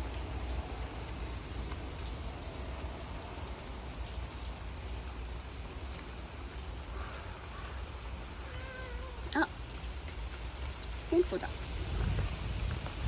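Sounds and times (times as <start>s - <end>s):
heavy rain falling: 0.0s - 13.0s
raindrop ticks: 0.0s - 13.0s
wind buffeting microphone: 10.6s - 13.0s.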